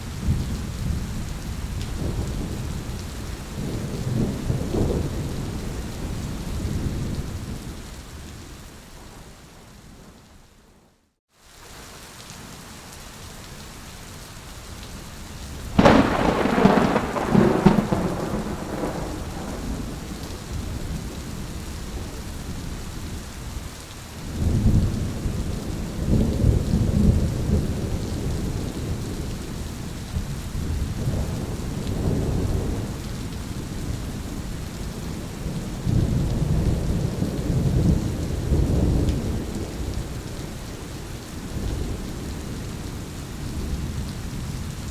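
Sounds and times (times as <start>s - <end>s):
steady rain: 0.0s - 44.9s
low rolls of thunder: 0.2s - 7.8s, 15.8s - 22.8s, 24.3s - 44.7s
loud thunderclap: 15.8s - 21.2s.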